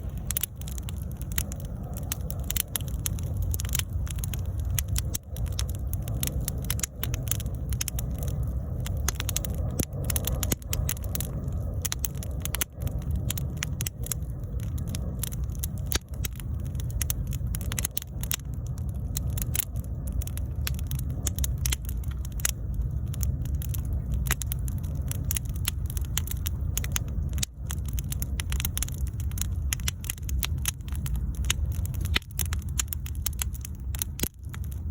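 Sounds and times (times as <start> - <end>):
bonfire crackling: 0.0 - 34.9
steady low rush of fire: 0.0 - 34.9.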